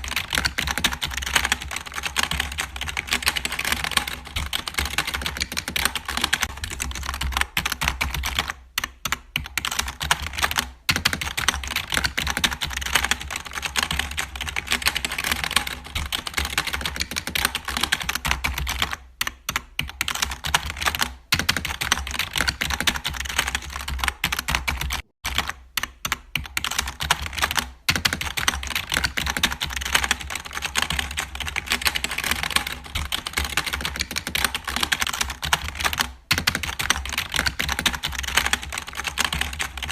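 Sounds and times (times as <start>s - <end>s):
fast continuous clicking: 0.0s - 39.9s.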